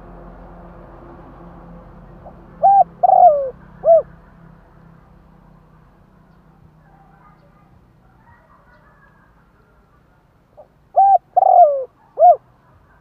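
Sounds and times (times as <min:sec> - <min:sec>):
dove cooing: 0:02.2 - 0:04.1, 0:10.6 - 0:12.4.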